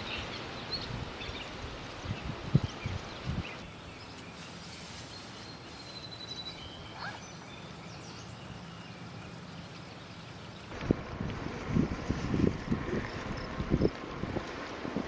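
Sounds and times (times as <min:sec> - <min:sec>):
bird chirps and calls: 0:02.2 - 0:10.7.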